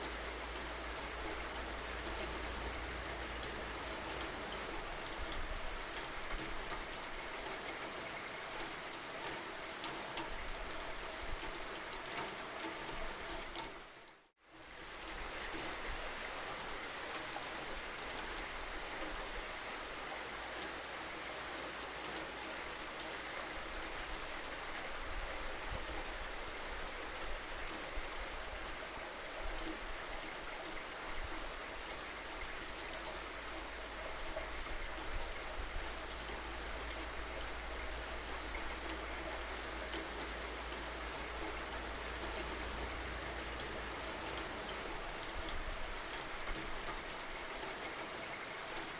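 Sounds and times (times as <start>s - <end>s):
steady rainfall: 0.0s - 48.9s.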